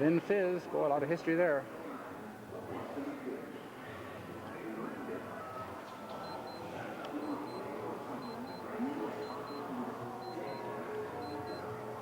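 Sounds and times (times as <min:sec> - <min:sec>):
faint background voices: 0:00.0 - 0:12.0
high electronic beeps: 0:08.2 - 0:10.6, 0:11.2 - 0:11.6.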